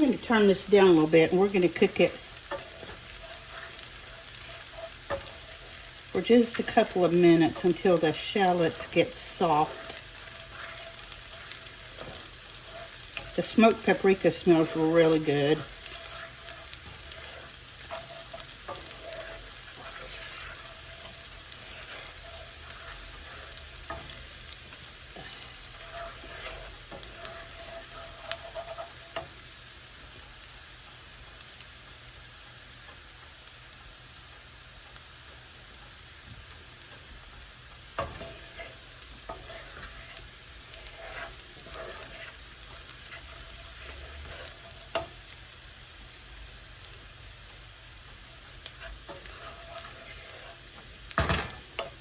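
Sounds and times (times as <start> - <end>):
utensil tapping pan: 0.0 - 29.3, 37.8 - 45.4
utensil scraping pan: 0.0 - 29.4, 36.8 - 45.4, 48.3 - 52.0
shallots sizzling in butter: 0.0 - 52.0.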